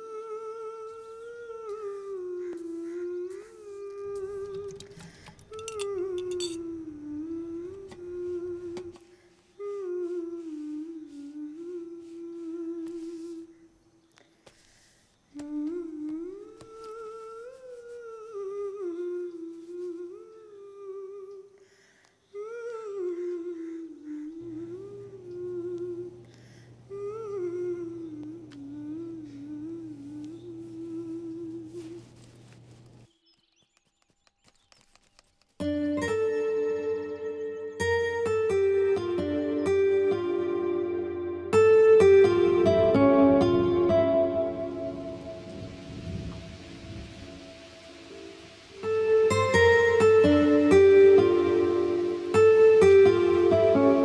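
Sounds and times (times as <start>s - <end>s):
person humming a melody: 0.0s - 13.8s, 15.3s - 21.6s, 22.2s - 32.3s, 35.8s - 54.0s
plucked-string music: 35.6s - 54.0s.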